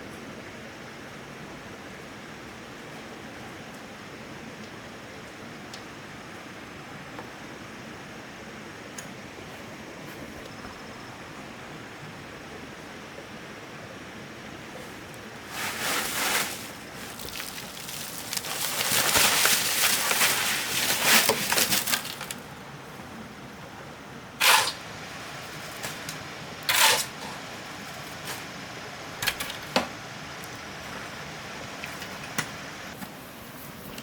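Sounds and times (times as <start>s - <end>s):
tool scraping sand and cement: 15.5s - 22.4s, 24.4s - 28.5s.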